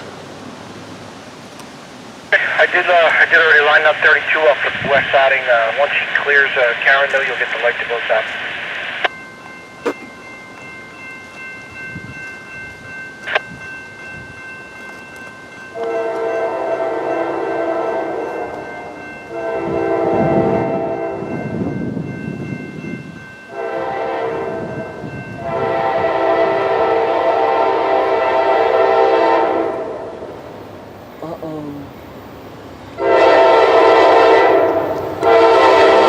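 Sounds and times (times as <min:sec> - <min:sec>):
locomotive air horn blasts: 0:15.8 - 0:21.3, 0:23.5 - 0:30.3, 0:33.0 - 0:36.0.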